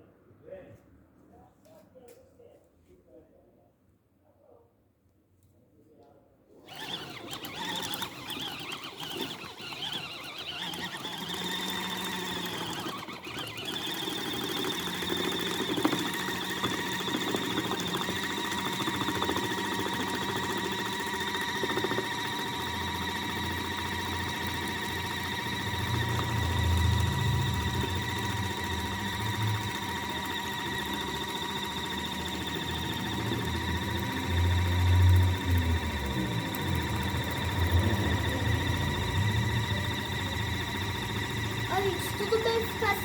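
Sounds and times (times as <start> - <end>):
washing machine motor whining: 6.6 - 43.0.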